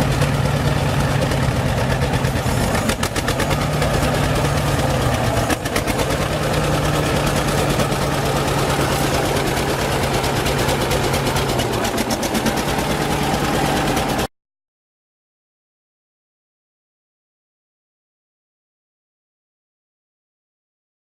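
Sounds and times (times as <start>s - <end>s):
tractor engine running: 0.0s - 14.3s.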